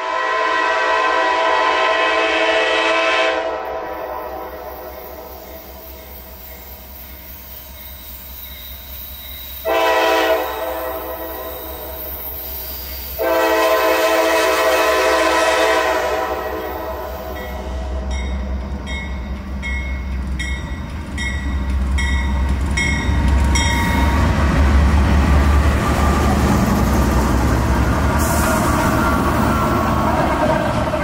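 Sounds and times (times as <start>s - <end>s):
locomotive air horn chord: 0.0s - 5.3s, 9.6s - 12.0s, 13.2s - 18.2s
diesel locomotive rumble: 3.0s - 31.0s.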